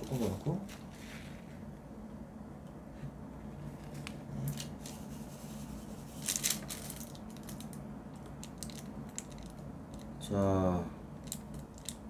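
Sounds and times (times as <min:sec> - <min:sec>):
plastic bag rustling: 0:00.0 - 0:01.7, 0:06.1 - 0:07.7.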